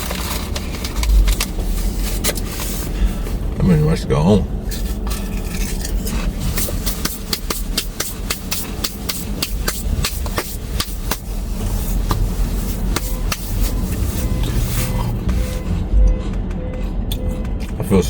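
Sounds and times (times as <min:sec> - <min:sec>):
steady low rumble: 0:00.0 - 0:18.0
sharp ticks: 0:15.3 - 0:18.0.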